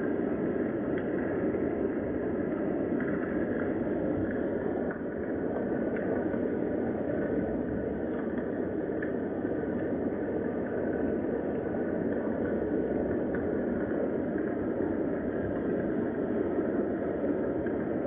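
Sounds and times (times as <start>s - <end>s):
steady rain hiss: 0.0s - 18.0s.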